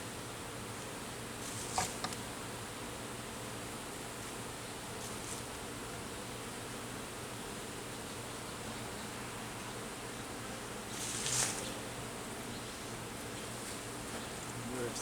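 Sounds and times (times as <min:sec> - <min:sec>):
loud rustle: 0:10.9 - 0:11.8.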